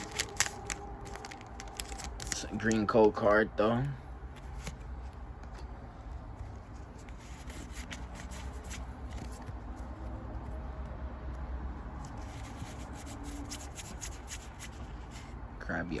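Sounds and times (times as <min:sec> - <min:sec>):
trading cards sliding and rustling: 0:00.0 - 0:02.8, 0:04.3 - 0:05.3, 0:06.0 - 0:10.2, 0:12.0 - 0:15.4.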